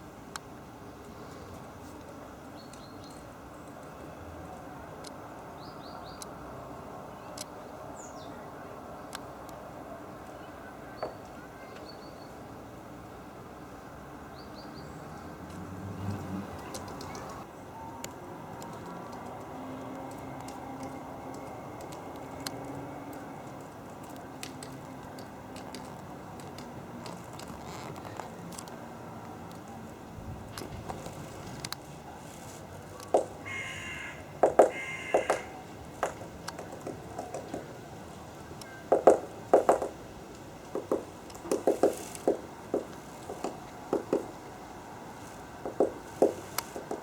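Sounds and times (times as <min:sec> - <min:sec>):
woodpecker tapping: 0:33.0 - 0:37.9, 0:38.6 - 0:47.0.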